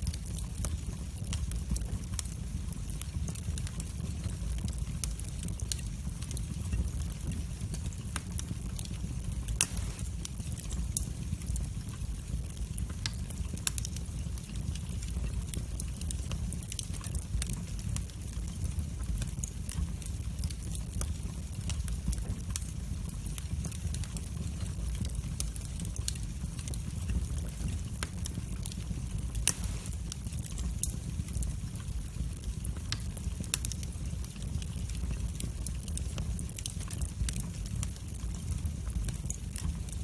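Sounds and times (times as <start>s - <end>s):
low rumble of flames: 0.0s - 40.0s
wood fire popping and crackling: 0.0s - 40.0s.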